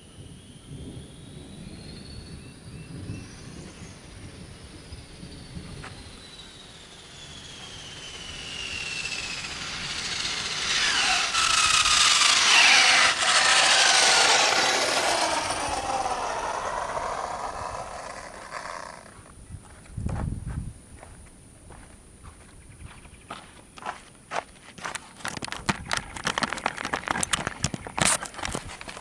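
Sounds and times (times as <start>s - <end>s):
rc car motor whine passing: 0.4s - 19.4s, 24.8s - 29.0s.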